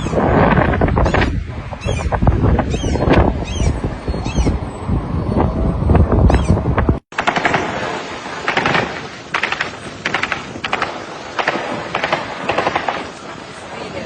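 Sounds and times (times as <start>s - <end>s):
automatic gunfire bursts: 7.1s - 7.8s, 8.5s - 13.0s.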